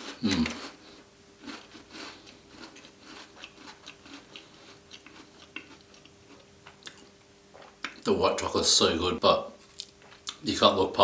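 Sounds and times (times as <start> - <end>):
biscuit chewing crunches: 0.0 - 8.0.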